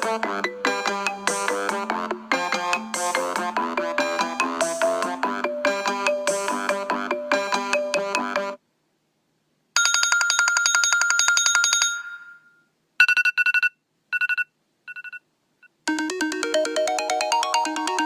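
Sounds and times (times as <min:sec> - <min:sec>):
melodic ringtone: 0:00.0 - 0:08.6, 0:15.9 - 0:18.0.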